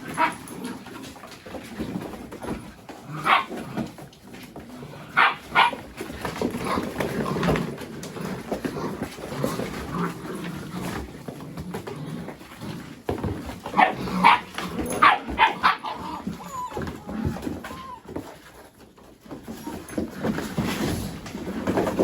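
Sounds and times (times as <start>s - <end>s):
puppies yapping: 3.2s - 3.6s, 5.1s - 5.9s, 13.7s - 18.6s.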